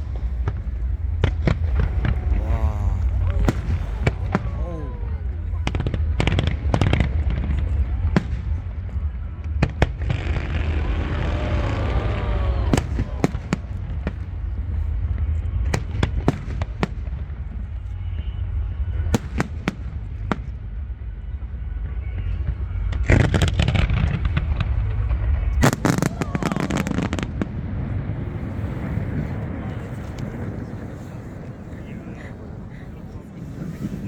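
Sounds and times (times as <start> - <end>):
fireworks crackling: 0.0 - 8.6, 9.8 - 14.8, 22.5 - 34.0
steady low rumble: 0.0 - 25.8.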